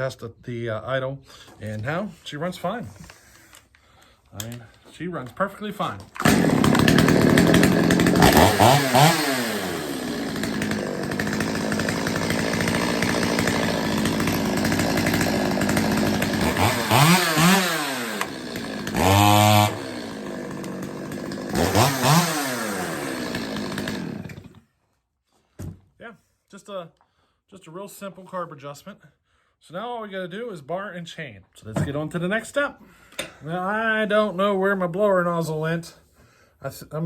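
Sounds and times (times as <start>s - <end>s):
chainsaw engine idling and revving: 6.1s - 24.6s.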